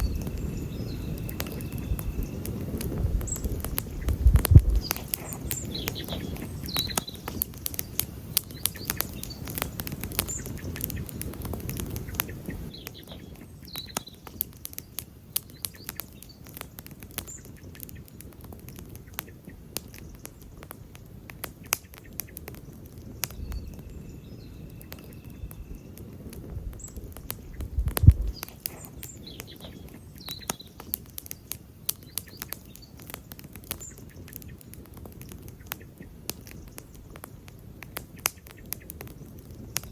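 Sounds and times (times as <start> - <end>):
campfire crackling: 0.0 - 39.9
small birds chirping: 0.0 - 39.9
low rumble: 27.5 - 28.4.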